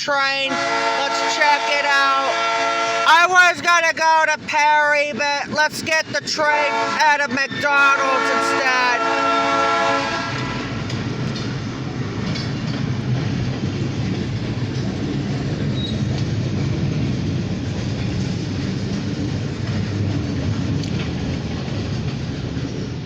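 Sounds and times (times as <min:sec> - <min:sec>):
freight train rolling past: 0:00.0 - 0:23.0
wheels clicking over rail joints: 0:10.3 - 0:23.0.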